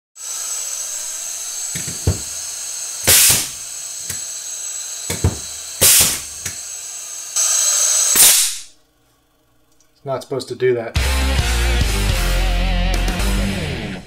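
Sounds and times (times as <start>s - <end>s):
air hissing from nail gun: 0.2s - 8.7s
loud bursts of air: 3.0s - 4.2s, 5.1s - 6.6s, 7.3s - 8.7s.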